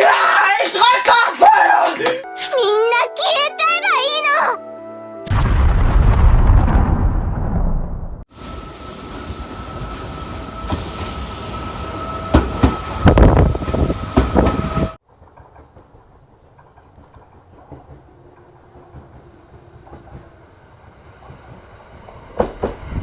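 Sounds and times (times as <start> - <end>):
train clattering on rails: 8.4 - 23.0.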